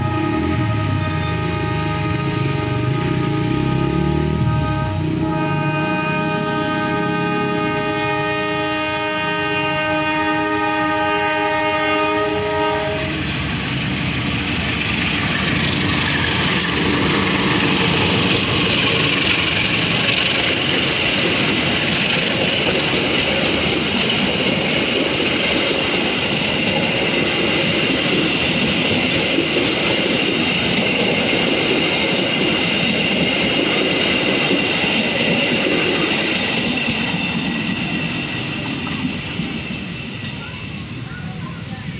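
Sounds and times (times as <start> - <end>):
locomotive horn chord: 0.0 - 13.3
train wheels clattering on rails: 12.1 - 40.9.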